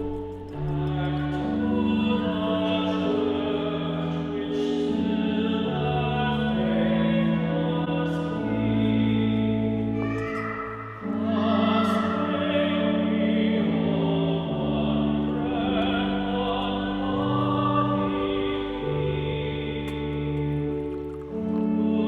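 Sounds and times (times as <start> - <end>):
singing with vibrato: 9.8 - 19.9.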